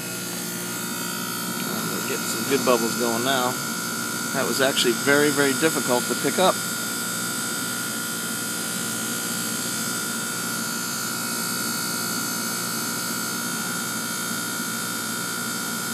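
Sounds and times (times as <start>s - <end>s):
high whine: 0.0s - 6.6s
heat pump machine drone: 0.0s - 15.9s.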